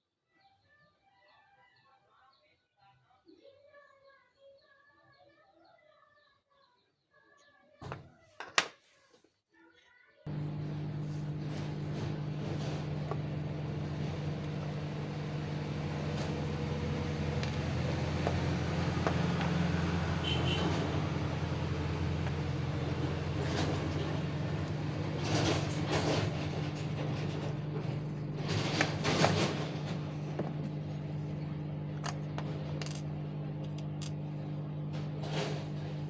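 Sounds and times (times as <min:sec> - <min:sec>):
mechanical hum with hiss: 0:10.3 - 0:36.0.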